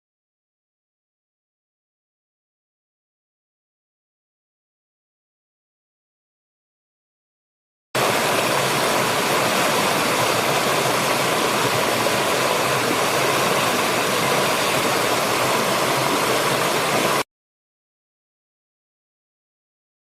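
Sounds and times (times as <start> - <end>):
waterfall rushing: 8.0 - 17.2.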